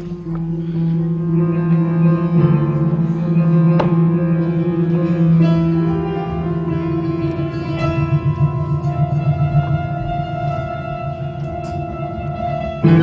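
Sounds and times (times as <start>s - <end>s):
plucked string music: 0.0s - 13.0s
low held note: 3.1s - 13.0s.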